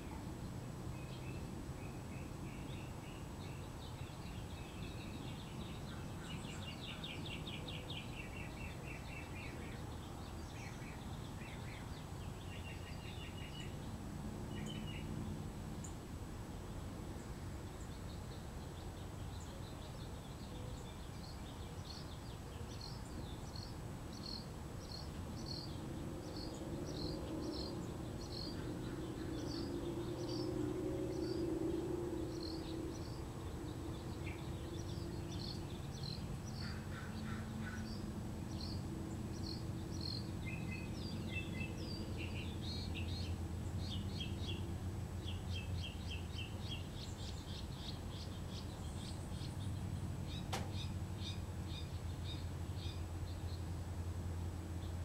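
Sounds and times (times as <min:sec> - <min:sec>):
birds chirping: 0:01.0 - 0:16.0, 0:16.8 - 0:53.7.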